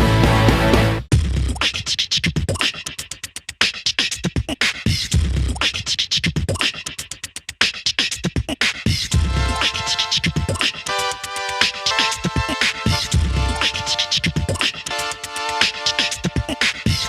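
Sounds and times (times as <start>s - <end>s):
electronic hip-hop beat: 0.0s - 17.0s.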